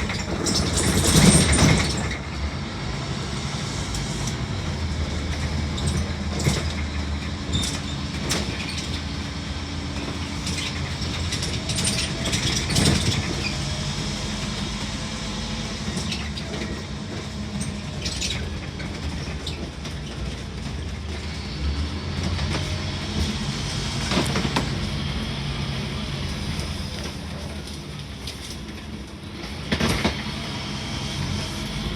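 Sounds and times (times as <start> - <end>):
bodywork rattles and clicks: 0.0 - 2.4, 5.0 - 25.0
bus diesel engine droning: 0.0 - 31.9.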